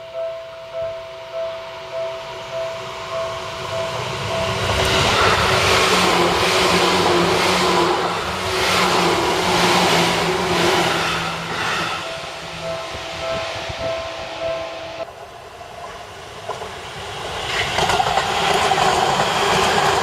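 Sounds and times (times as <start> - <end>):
train wheels clattering on rails: 3.6 - 15.1, 15.7 - 20.0.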